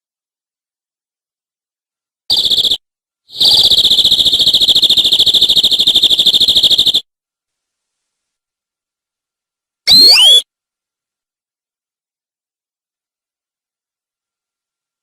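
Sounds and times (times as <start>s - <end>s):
canary trilling: 3.4s - 7.0s, 9.9s - 10.4s.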